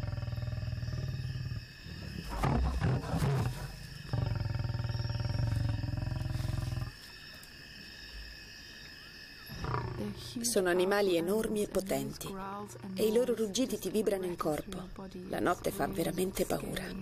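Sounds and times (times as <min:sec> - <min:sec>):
lion growling and snarling: 0:00.0 - 0:07.1, 0:09.5 - 0:10.4.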